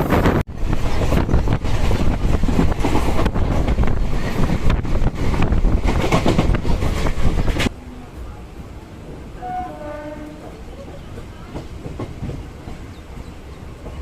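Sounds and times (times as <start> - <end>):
wind blasting across microphone: 0.0 - 7.7
electric train rumble: 0.0 - 14.0.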